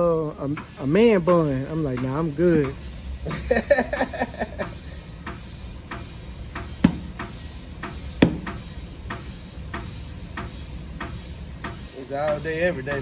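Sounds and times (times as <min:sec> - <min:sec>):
sharp knocks: 0:06.6 - 0:11.8.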